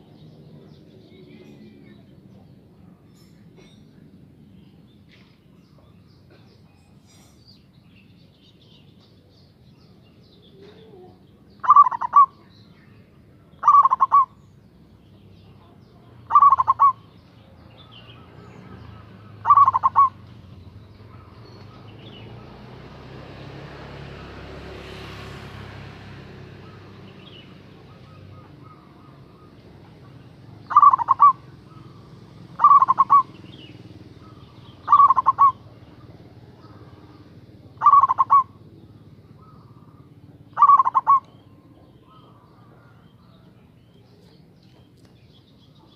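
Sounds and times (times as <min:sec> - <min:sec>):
dove cooing: 0:10.5 - 0:12.5, 0:13.5 - 0:14.4, 0:15.6 - 0:17.1, 0:18.2 - 0:22.6, 0:26.5 - 0:43.2
faint bird chirps: 0:26.6 - 0:45.9.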